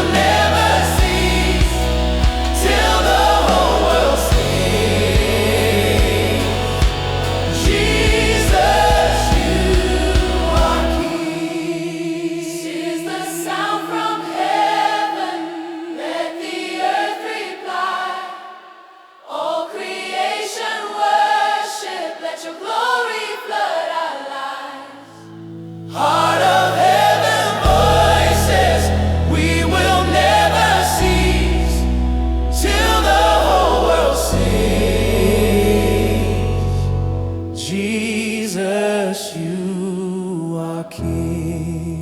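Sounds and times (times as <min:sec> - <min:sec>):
backing band: 0:00.0 - 0:11.1
choir singing gospel song: 0:00.0 - 0:42.0.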